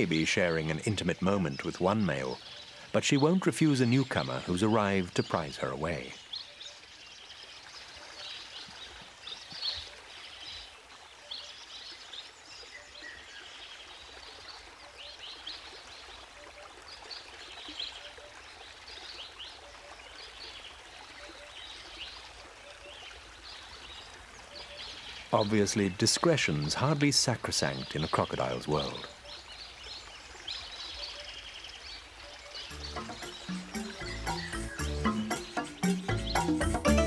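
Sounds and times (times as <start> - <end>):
bird chirps: 0.0 - 13.6, 24.5 - 26.0, 27.8 - 37.0.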